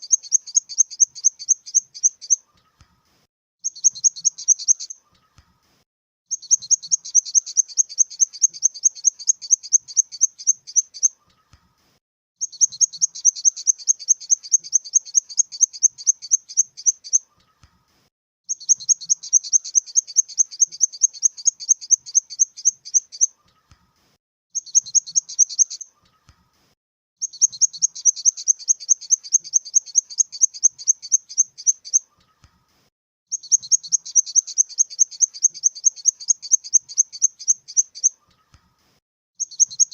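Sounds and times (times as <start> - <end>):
grasshopper chirping: 0.0 - 2.4, 6.3 - 11.1, 12.4 - 17.2, 18.5 - 23.3, 27.2 - 32.0, 33.3 - 38.1.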